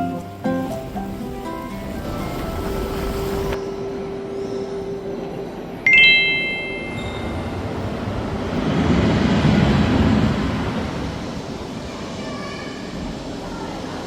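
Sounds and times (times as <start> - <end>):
bright bell-like ding: 5.9 - 7.7.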